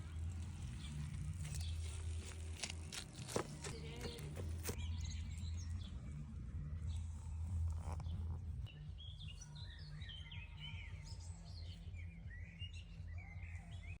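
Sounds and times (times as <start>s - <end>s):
songbirds chirping and singing: 0.0s - 14.0s.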